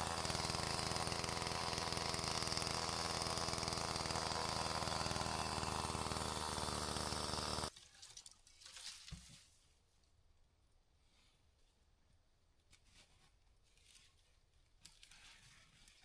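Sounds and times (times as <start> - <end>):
small petrol engine running: 0.0 - 7.7.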